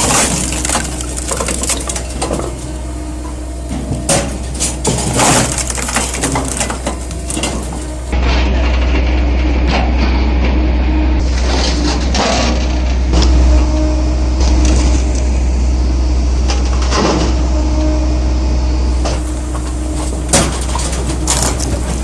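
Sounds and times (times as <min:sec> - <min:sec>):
wood cracks and knocks: 0:00.0 - 0:02.9, 0:03.7 - 0:08.2, 0:19.1 - 0:22.0
log splitter motor hum: 0:00.0 - 0:22.0.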